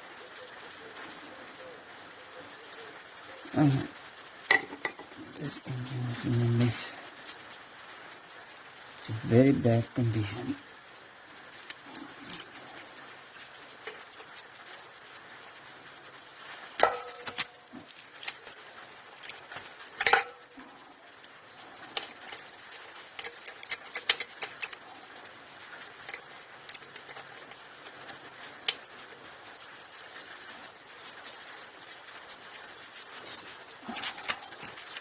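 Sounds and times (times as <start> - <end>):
metal tools clinking and knocking: 20.0 - 20.4.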